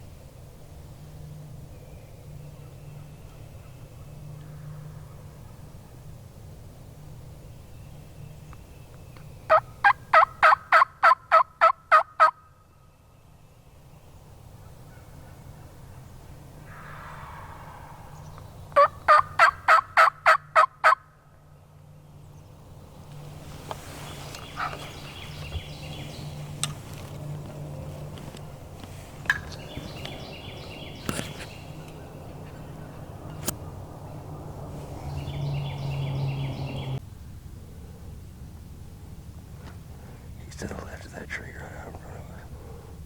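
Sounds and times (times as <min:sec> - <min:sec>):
wild turkey yelping: 0:09.5 - 0:12.4, 0:16.7 - 0:21.0, 0:24.4 - 0:26.2.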